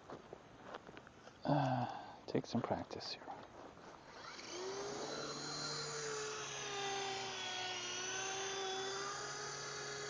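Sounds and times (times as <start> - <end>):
toy helicopter rotors whining: 4.1 - 10.0.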